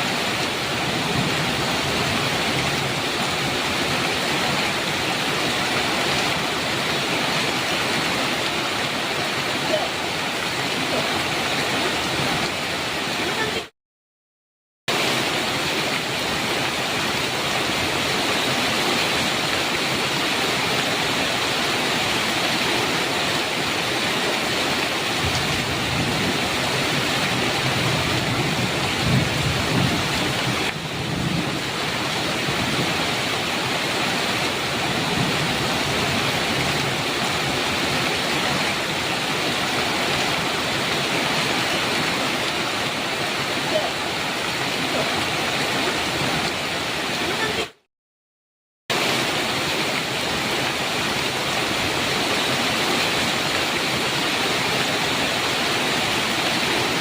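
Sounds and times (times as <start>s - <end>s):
heavy rain on a metal roof: 0.0s - 13.7s, 14.9s - 47.9s, 48.9s - 57.0s
thunder rumbling: 25.1s - 33.0s.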